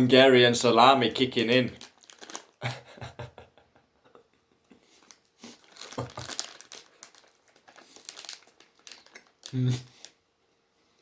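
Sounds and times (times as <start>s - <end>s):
plastic packet crinkling: 1.0s - 2.7s, 4.9s - 10.2s.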